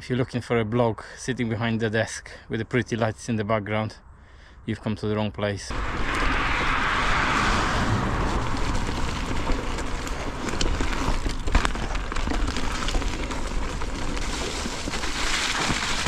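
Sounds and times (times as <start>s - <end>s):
wind on microphone: 5.7s - 13.3s
tyres rumbling on trail: 5.7s - 16.0s
bike rattling: 8.0s - 16.0s.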